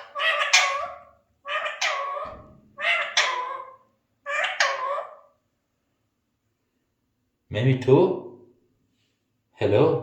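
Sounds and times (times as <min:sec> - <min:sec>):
parakeet harsh calls: 0:00.0 - 0:05.3.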